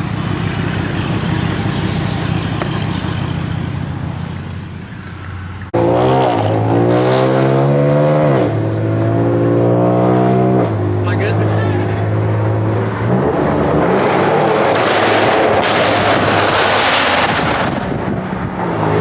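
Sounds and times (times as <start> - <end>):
car engine running: 0.0 - 5.8, 10.6 - 15.0
car engine revving: 0.0 - 19.0.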